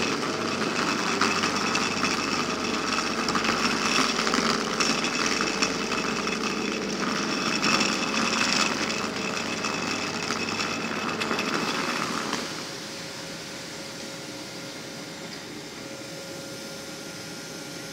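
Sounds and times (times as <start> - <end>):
train whir and hiss: 11.6 - 17.9.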